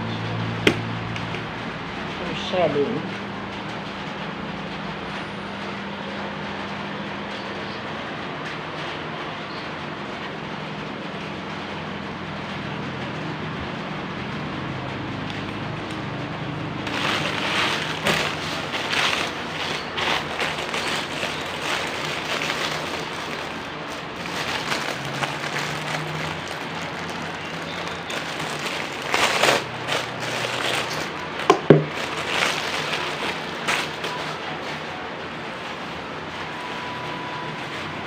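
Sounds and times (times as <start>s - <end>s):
plastic packaging crinkling: 16.7s - 34.9s.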